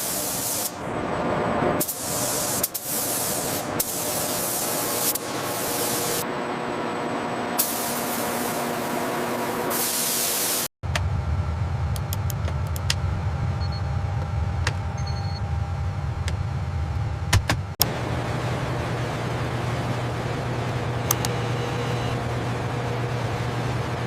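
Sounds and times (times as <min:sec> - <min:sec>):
paint spray gun hissing: 0:00.0 - 0:00.8, 0:01.8 - 0:06.2, 0:07.6 - 0:08.6, 0:09.7 - 0:10.7
machine hum: 0:04.6 - 0:09.7, 0:10.8 - 0:24.0
sharp clicks: 0:21.1 - 0:21.4.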